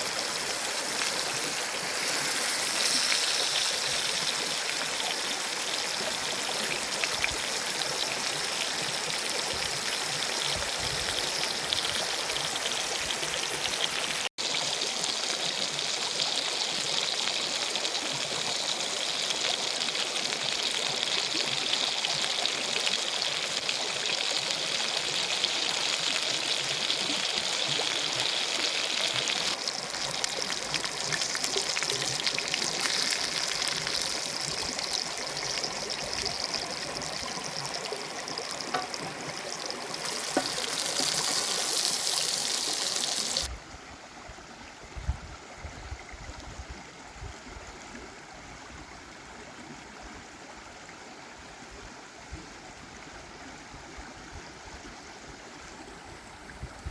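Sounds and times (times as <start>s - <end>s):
fish sizzling in a pan: 0.0s - 43.5s.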